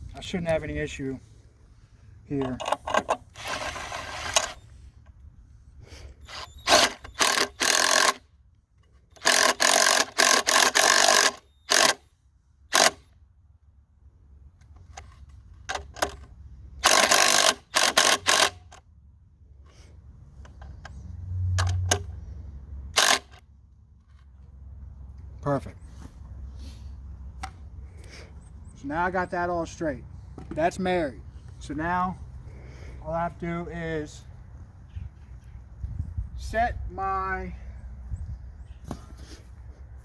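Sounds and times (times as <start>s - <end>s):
impact driver hammering: 6.7s - 8.2s, 9.2s - 12.0s, 12.7s - 13.0s, 16.8s - 18.7s, 23.0s - 23.4s.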